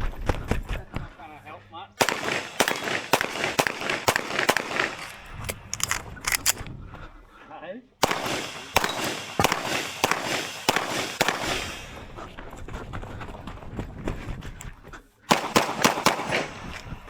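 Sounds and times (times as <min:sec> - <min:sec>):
pistol shots: 0:02.0 - 0:06.6, 0:08.0 - 0:12.1, 0:15.3 - 0:16.9.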